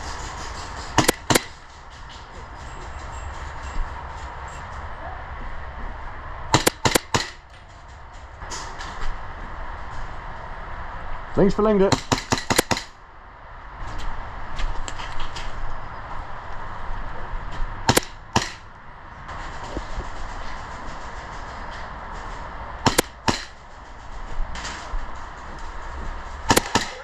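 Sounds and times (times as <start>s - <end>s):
airsoft gun shots: 1.0s - 1.6s, 6.5s - 7.4s, 11.9s - 13.0s, 17.9s - 18.7s, 22.8s - 23.6s, 26.5s - 27.0s.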